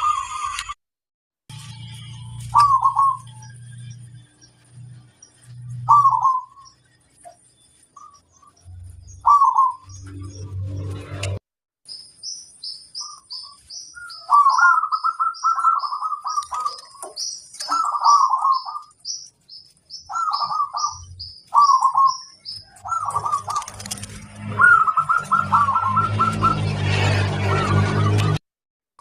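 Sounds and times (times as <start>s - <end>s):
bird chirping: 1.5s - 11.2s, 11.9s - 26.8s
dove cooing: 2.5s - 3.3s, 5.9s - 6.6s, 9.2s - 9.8s, 14.3s - 18.8s, 22.8s - 26.6s.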